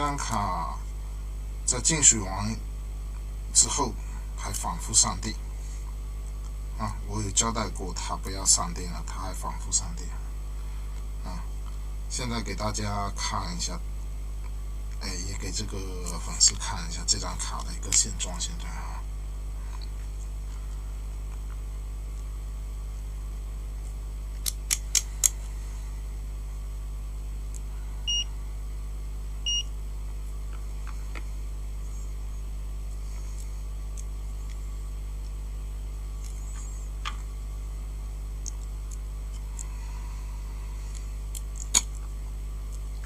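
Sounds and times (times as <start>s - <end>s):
steady low hum: 0.0s - 43.0s
multimeter high beeps: 28.1s - 28.3s, 29.4s - 29.7s.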